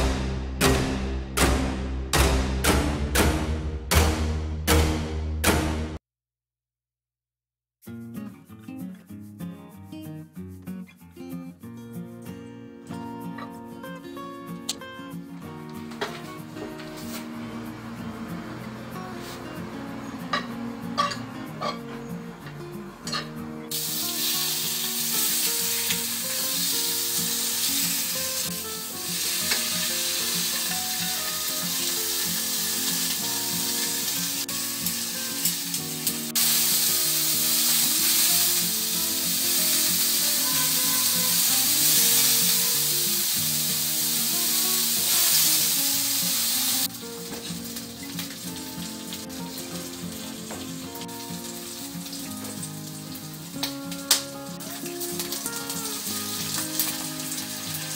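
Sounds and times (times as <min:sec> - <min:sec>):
soft background music: 0:12.9 - 0:57.9
pork sizzling in a frying pan: 0:20.3 - 0:21.8, 0:23.1 - 0:57.9.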